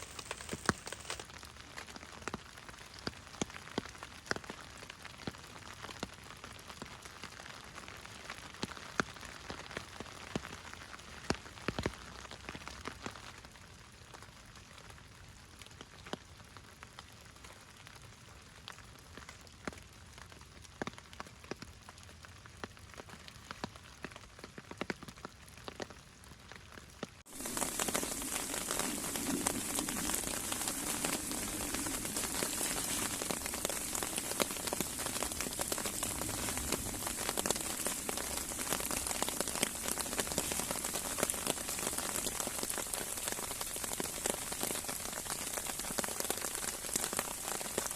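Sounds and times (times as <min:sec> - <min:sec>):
rain: 0:00.0 - 0:47.9
raindrops tapping: 0:27.3 - 0:47.9.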